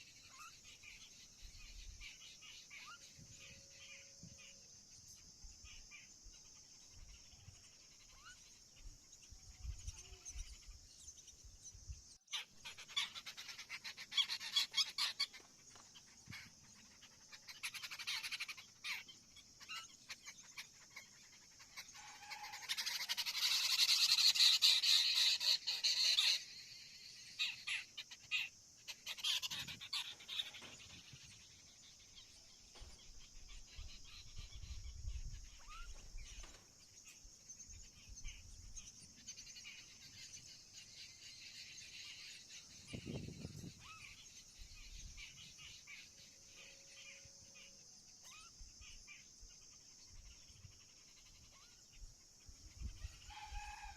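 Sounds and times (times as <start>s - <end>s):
birds calling: 0.0s - 53.9s
harsh chattering bird call: 12.3s - 15.5s, 16.2s - 26.6s, 27.3s - 36.7s.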